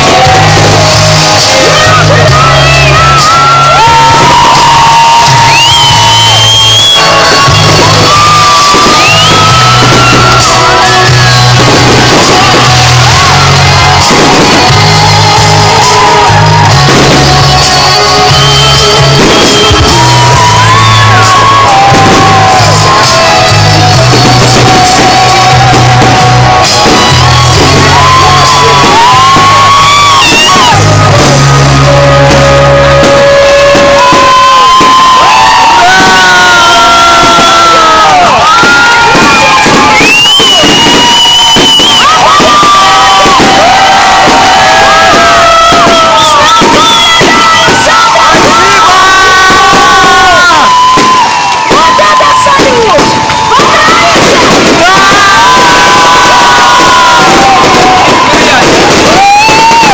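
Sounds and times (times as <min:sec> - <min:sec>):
person singing: 0:00.0 - 0:06.3, 0:07.0 - 0:34.3
crowd shouting and whooping: 0:00.0 - 0:59.9
loud music with heavy bass: 0:00.0 - 0:59.9.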